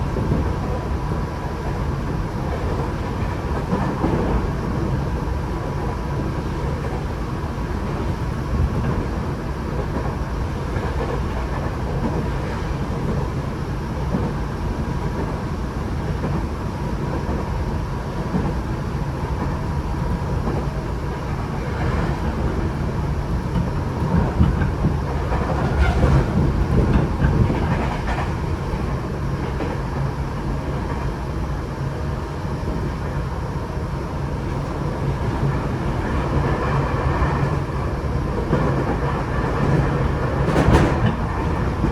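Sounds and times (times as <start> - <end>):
train wheels rumbling on rail: 0.0 - 41.9
clatter over rail joints: 23.4 - 28.6, 38.4 - 41.9.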